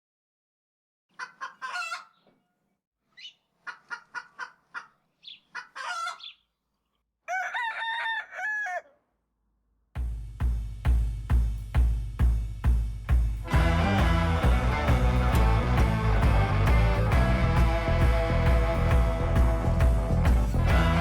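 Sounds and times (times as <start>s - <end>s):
rooster clucking: 1.2s - 2.2s, 3.6s - 6.4s
rooster crowing: 7.3s - 9.0s.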